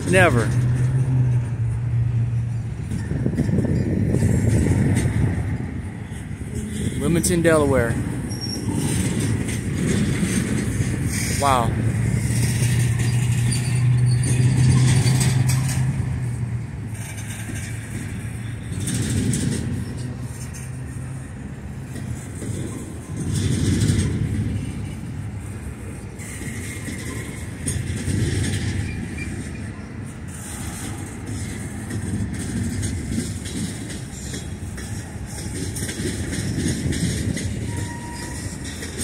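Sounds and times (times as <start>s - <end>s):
freight car wheels rumbling: 0.0s - 39.0s.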